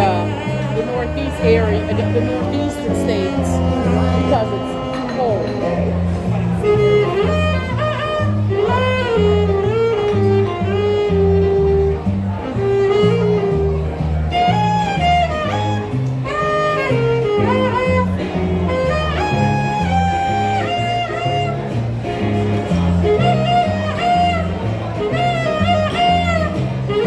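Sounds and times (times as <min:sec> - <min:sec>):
guitar: 0:00.0 - 0:27.0
plucked double bass: 0:00.0 - 0:27.0
violin melody: 0:00.0 - 0:27.0.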